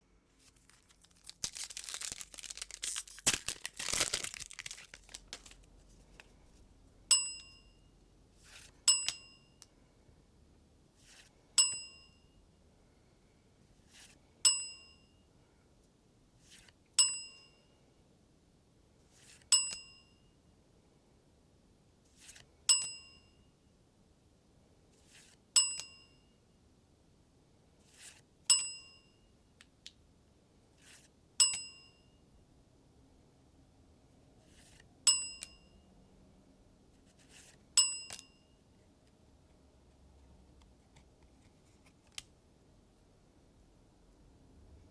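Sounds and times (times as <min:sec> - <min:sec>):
bell-like ding: 0:11.6 - 0:12.3.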